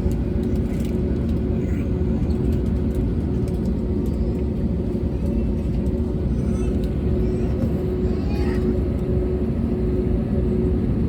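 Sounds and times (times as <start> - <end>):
airplane cabin low rumble: 0.0 - 11.0.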